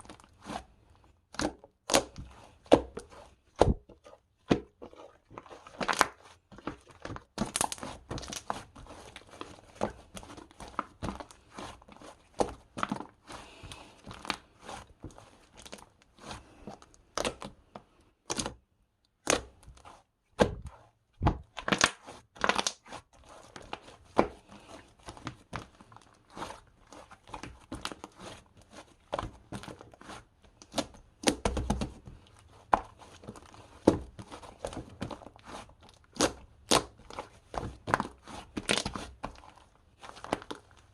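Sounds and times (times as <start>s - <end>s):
crinkling and tearing: 4.8s - 17.6s, 21.4s - 40.9s.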